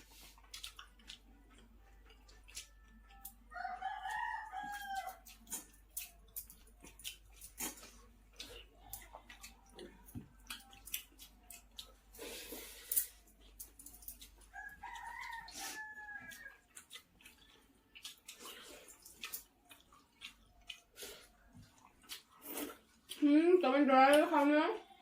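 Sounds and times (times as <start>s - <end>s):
eating rice by hand: 0.0s - 23.3s
rooster crowing: 3.5s - 5.2s, 14.5s - 16.7s.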